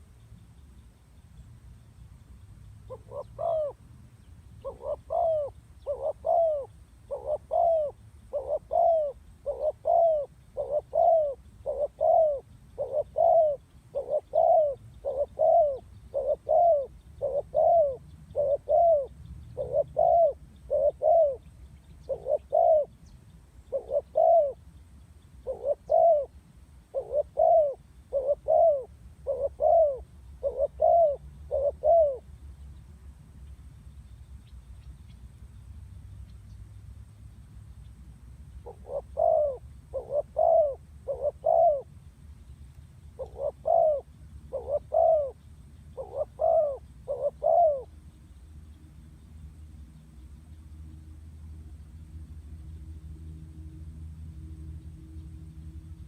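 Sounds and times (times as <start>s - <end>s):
dove cooing: 2.9s - 3.8s, 4.6s - 23.0s, 23.6s - 24.6s, 25.4s - 32.3s, 38.6s - 41.9s, 43.2s - 47.9s.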